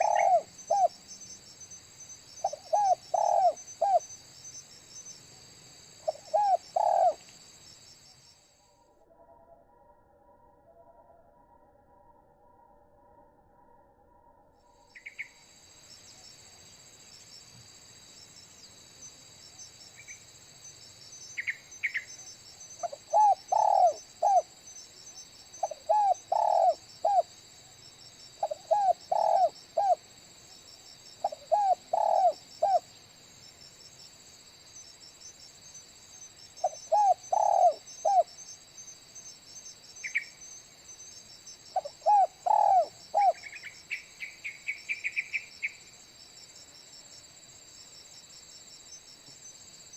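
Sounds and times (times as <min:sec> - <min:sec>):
dove cooing: 0:00.0 - 0:01.0, 0:02.4 - 0:04.1, 0:06.0 - 0:07.2, 0:22.8 - 0:24.5, 0:25.6 - 0:27.3, 0:28.4 - 0:30.0, 0:31.2 - 0:32.8, 0:36.6 - 0:38.3, 0:41.8 - 0:43.6
high insect trill: 0:00.0 - 0:08.9, 0:14.8 - 0:49.9.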